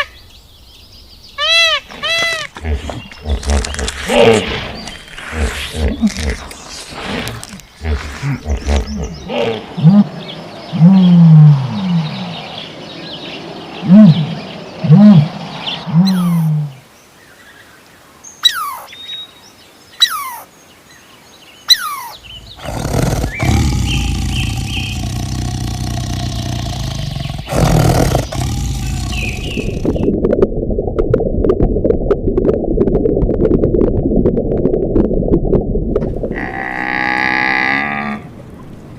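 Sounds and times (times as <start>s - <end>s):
deep animal calls: 1.9s - 12.4s, 21.7s - 30.1s
high falling calls: 18.4s - 19.0s, 20.0s - 20.5s, 21.7s - 30.0s.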